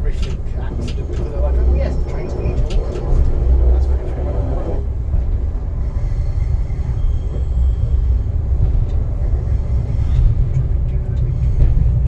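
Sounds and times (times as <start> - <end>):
diesel train engine rumble: 0.0 - 12.0.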